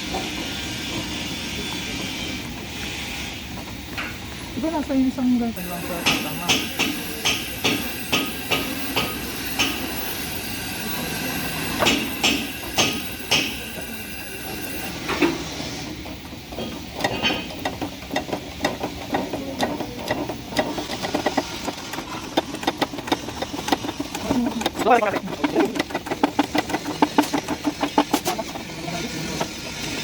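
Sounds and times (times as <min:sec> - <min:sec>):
hammer striking metal: 0:05.6 - 0:15.4.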